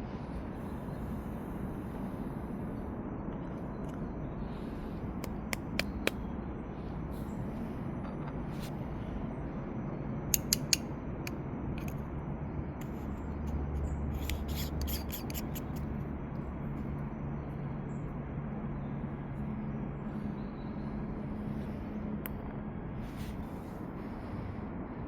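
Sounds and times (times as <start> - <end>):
steady low hum: 0.0 - 25.0
gear clicking and scraping: 12.8 - 15.9.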